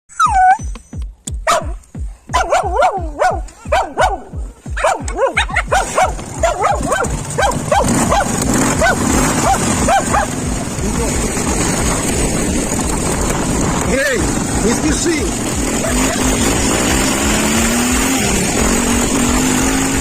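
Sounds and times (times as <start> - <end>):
dog barking: 1.4 - 10.4.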